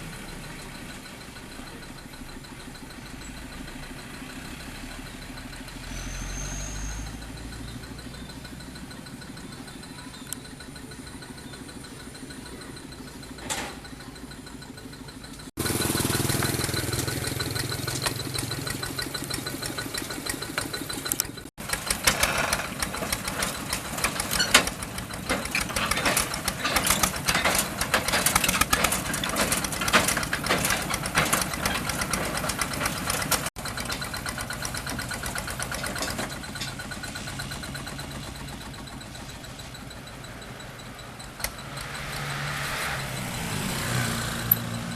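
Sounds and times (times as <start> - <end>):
combine harvester engine running: 0.0 - 44.9
rapid sharp clicks and knocks: 15.4 - 42.0.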